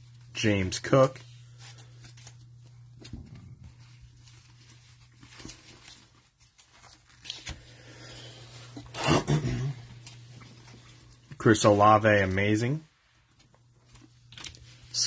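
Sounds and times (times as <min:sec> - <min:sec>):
trading cards rustling and clicking: 0:00.7 - 0:07.8, 0:13.4 - 0:15.0.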